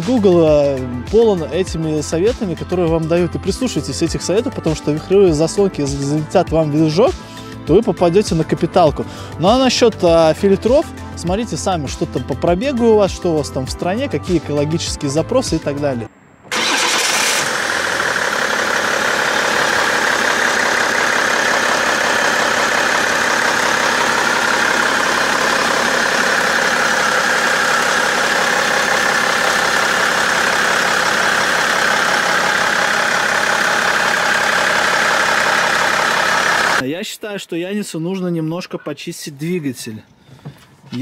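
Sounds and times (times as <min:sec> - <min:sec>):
diesel engine idling: 0:16.4 - 0:36.8.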